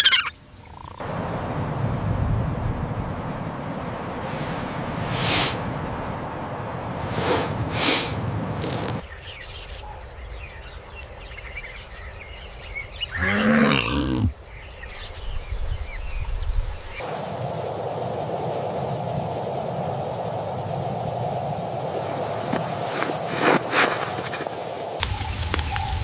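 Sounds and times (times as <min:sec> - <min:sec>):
rushing noise: 0:01.0 - 0:09.0
large animal calling: 0:13.1 - 0:14.3.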